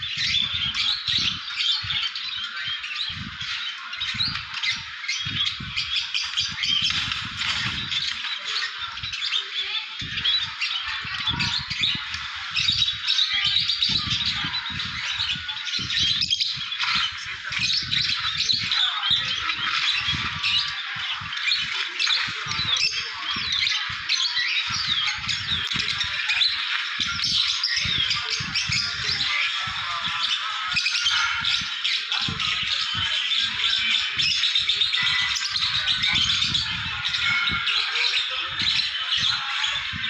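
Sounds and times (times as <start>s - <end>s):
small birds chirping and squawking: 0.0s - 40.0s.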